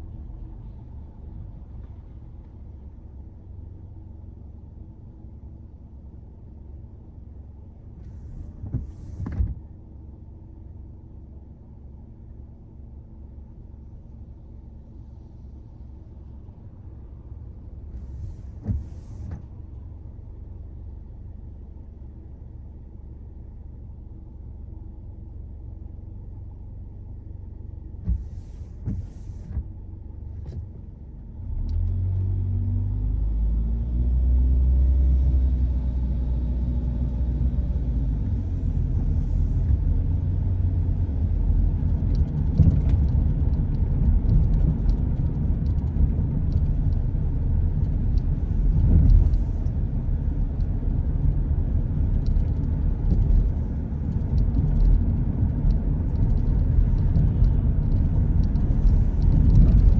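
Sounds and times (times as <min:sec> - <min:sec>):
tyres on road: 0:27.8 - 0:59.9
car engine accelerating: 0:31.3 - 0:59.9.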